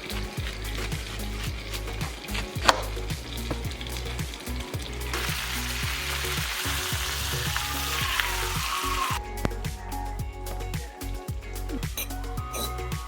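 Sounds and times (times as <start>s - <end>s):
food sizzling in a frying pan: 0.0s - 9.2s
background music with bass line: 0.0s - 13.0s.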